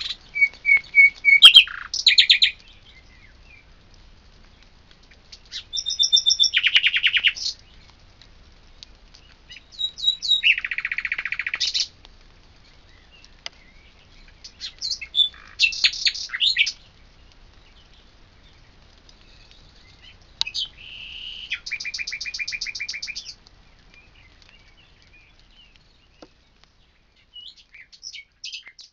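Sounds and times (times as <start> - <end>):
bird trills and whistles: 0.0 - 2.6, 5.5 - 7.5, 9.5 - 11.9, 14.5 - 16.8, 19.4 - 23.4.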